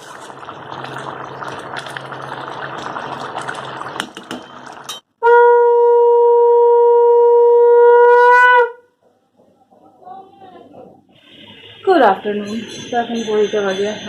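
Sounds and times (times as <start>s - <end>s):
bubbling pouring noise: 0.0s - 5.0s
loud horn-like blast: 5.2s - 8.8s.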